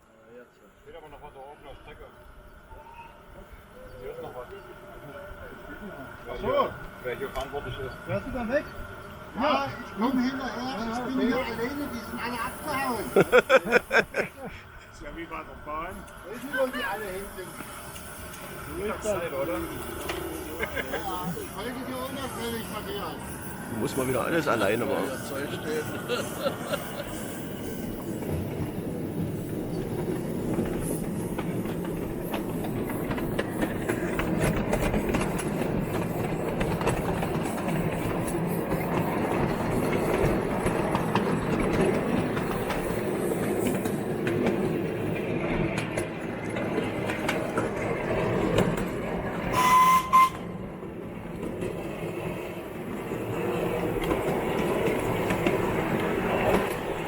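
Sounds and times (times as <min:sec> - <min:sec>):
toy train wheels clicking on track: 0:15.2 - 0:50.4, 0:52.5 - 0:57.0.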